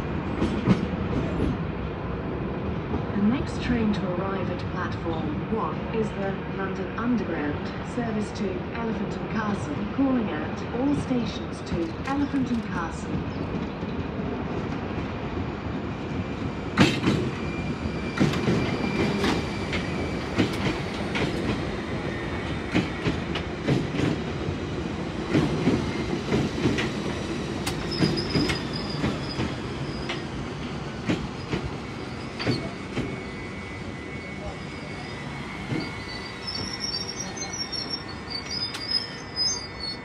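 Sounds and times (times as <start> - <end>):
train rumble: 0.0 - 40.0
wheels squealing on rail: 16.8 - 23.0, 27.2 - 40.0.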